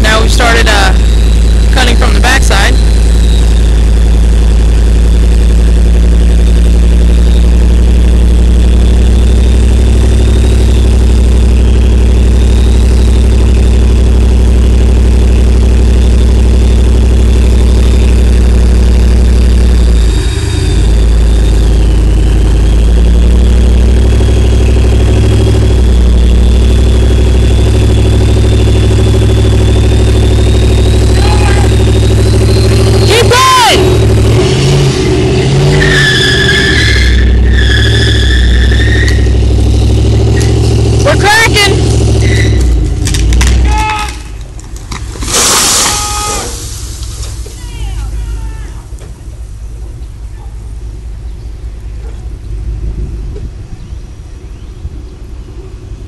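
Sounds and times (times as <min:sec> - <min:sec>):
engine running loudly: 0:00.0 - 0:53.8.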